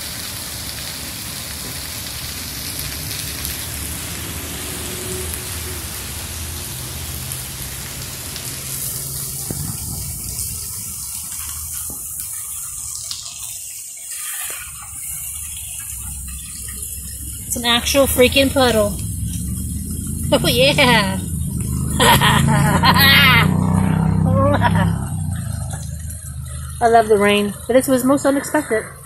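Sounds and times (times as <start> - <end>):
heavy rain hissing: 0.0 - 29.0
low steady hum: 15.3 - 29.0.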